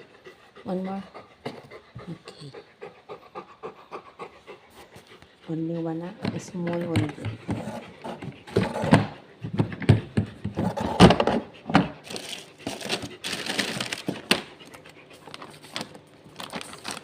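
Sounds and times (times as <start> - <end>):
plastic packet crinkling: 12.0 - 17.0.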